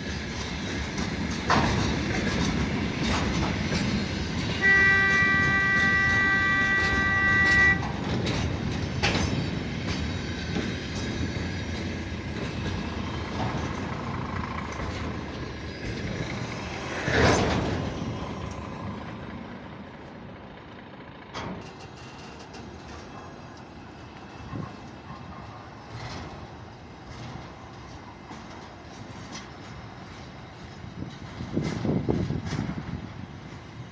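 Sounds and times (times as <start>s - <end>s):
loud train clank: 0.0s - 19.9s, 21.2s - 33.9s
train wheels clicking over rail joints: 0.0s - 33.9s
locomotive horn: 4.5s - 8.0s.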